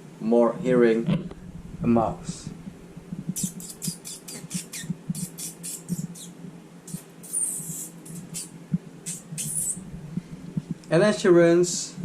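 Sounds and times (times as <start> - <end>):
faint steady hum: 0.0 - 12.0
high squeak: 3.4 - 8.5, 9.1 - 9.8.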